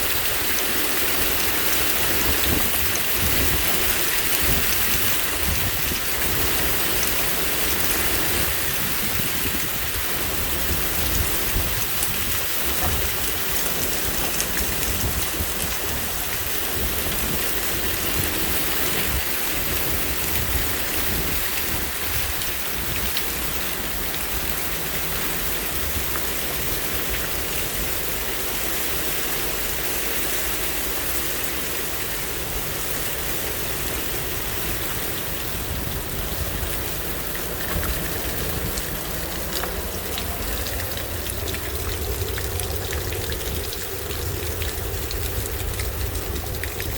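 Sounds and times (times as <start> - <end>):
rain pattering: 0.0 - 46.9
gusty wind rumble: 1.8 - 23.6.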